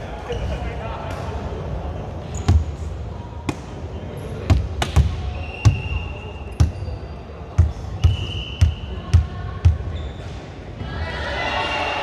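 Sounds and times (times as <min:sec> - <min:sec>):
volleyball thuds on court floor: 0:04.5 - 0:06.0.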